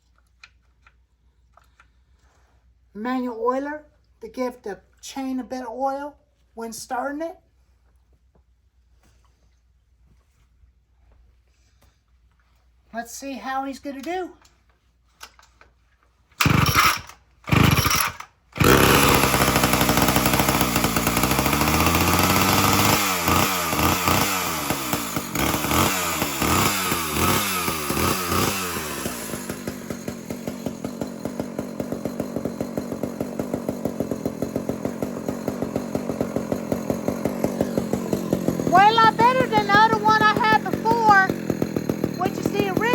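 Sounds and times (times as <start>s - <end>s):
chainsaw starting and revving: 16.4s - 42.9s.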